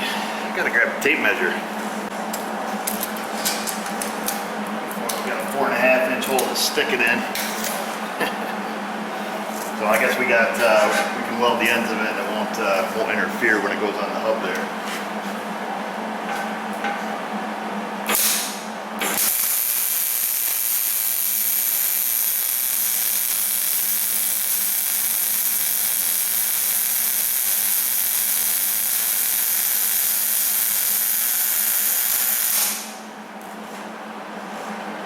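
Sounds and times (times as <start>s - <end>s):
arc welding hiss: 18.1s - 33.0s.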